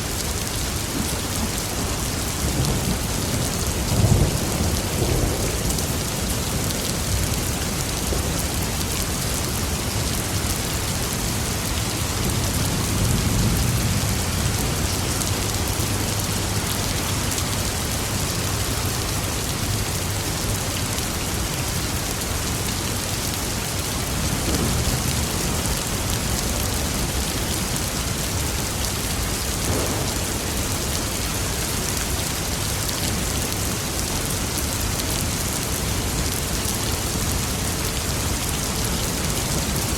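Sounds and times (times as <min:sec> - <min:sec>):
rain pattering: 0:00.0 - 0:39.9
distant thunder rumble: 0:24.2 - 0:27.3, 0:29.3 - 0:31.6.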